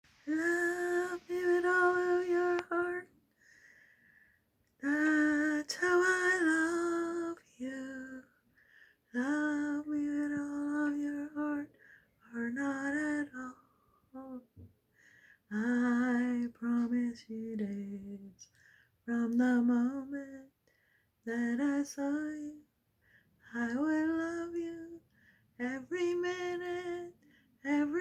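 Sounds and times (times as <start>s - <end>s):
woman singing wordless notes: 0.2s - 3.1s.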